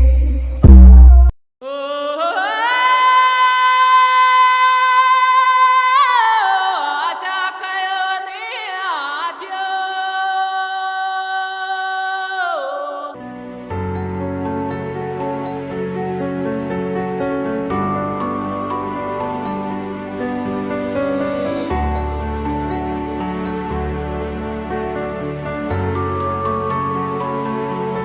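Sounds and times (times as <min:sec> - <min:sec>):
heavy bass hits: 0:00.6 - 0:01.3.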